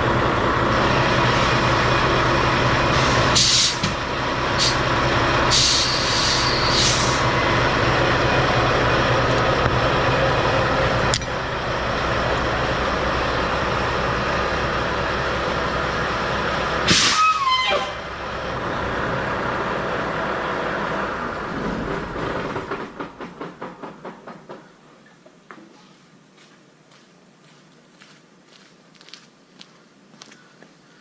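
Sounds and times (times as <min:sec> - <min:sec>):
diesel truck engine running: 0:00.0 - 0:23.1
air brake hisses: 0:03.0 - 0:03.8, 0:04.6 - 0:04.8, 0:05.5 - 0:07.2, 0:16.9 - 0:17.4
air hiss with falling whistle: 0:16.9 - 0:17.8.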